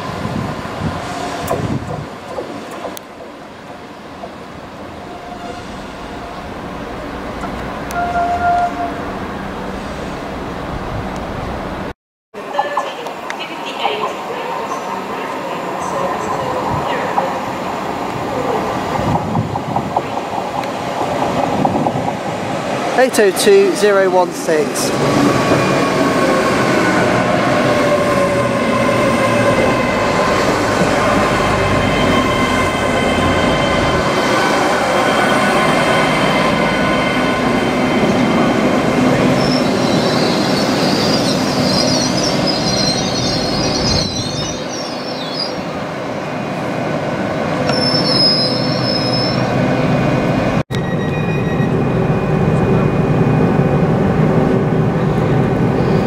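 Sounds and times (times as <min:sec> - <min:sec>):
train running noise: 0:00.0 - 0:56.0
train wheels squealing: 0:31.0 - 0:38.4, 0:39.3 - 0:45.7, 0:47.7 - 0:49.5, 0:50.8 - 0:52.8.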